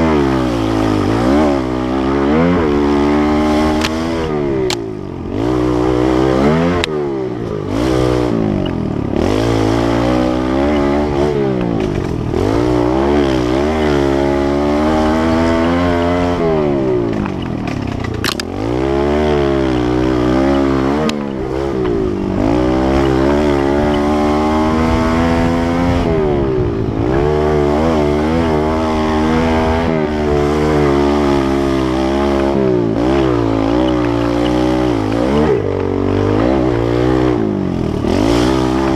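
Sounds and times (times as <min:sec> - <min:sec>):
motorcycle engine revving: 0:00.0 - 0:38.9
sharp click: 0:17.2 - 0:18.5.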